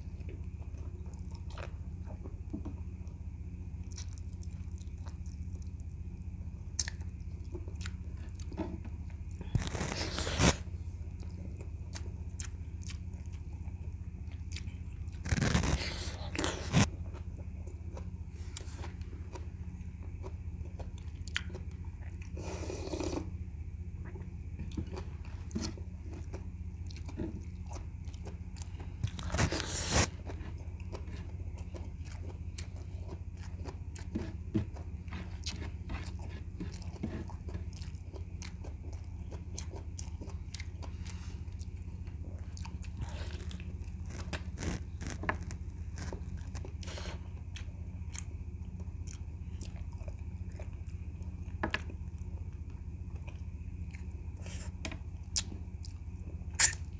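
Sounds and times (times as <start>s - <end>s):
steady low hum: 0.0s - 56.9s
wet chewing and biting: 24.0s - 54.6s, 55.3s - 56.9s.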